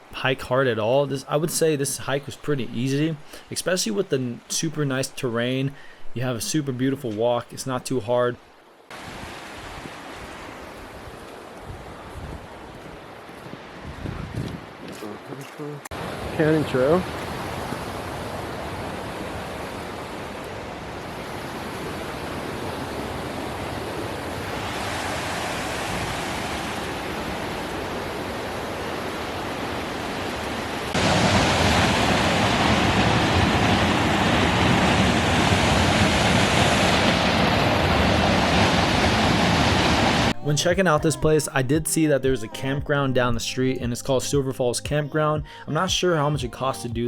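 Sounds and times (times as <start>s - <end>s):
waterfall roaring: 15.0s - 40.4s.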